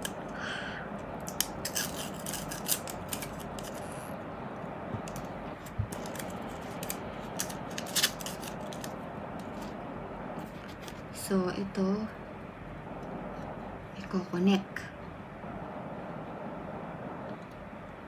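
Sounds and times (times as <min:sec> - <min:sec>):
steady background hiss: 0:00.0 - 0:18.0
plastic wrapping handled: 0:05.1 - 0:09.8.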